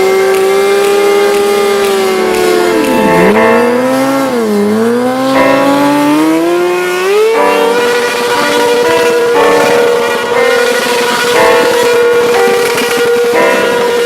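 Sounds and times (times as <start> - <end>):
motorcycle engine revving: 0.4 - 9.2.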